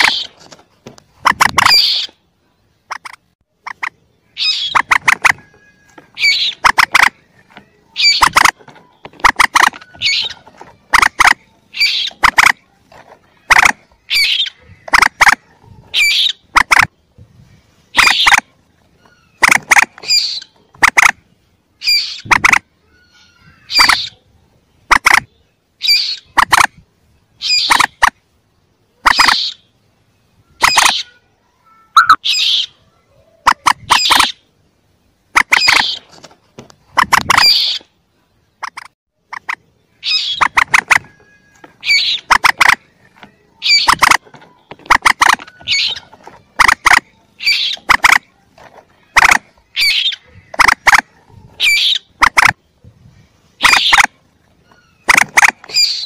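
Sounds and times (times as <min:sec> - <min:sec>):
sharp clicking bird notes: 0:02.9 - 0:05.6, 0:06.2 - 0:12.6, 0:13.5 - 0:15.5, 0:18.0 - 0:21.2, 0:24.9 - 0:25.3, 0:27.5 - 0:28.2, 0:29.0 - 0:29.6, 0:30.6 - 0:31.1, 0:33.4 - 0:34.4, 0:35.3 - 0:36.0, 0:38.6 - 0:48.3, 0:49.1 - 0:51.1, 0:51.7 - 0:52.6, 0:53.6 - 0:56.0
squeaky bird notes: 0:03.7 - 0:12.4, 0:13.9 - 0:14.7, 0:30.4 - 0:32.8, 0:38.7 - 0:48.2, 0:49.0 - 0:50.4, 0:53.6 - 0:56.0.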